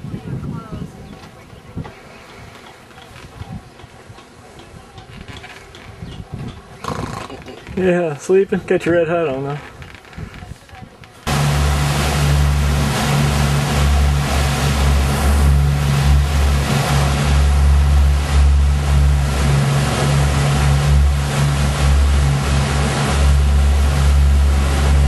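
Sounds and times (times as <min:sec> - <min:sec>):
boat engine running: 0:11.3 - 0:25.0.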